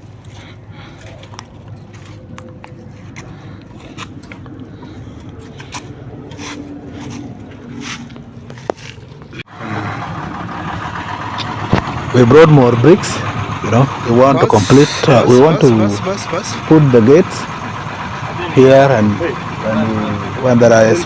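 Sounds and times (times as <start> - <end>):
irregular scraping: 0.2 - 9.4
steady noise with low hum: 11.4 - 21.0.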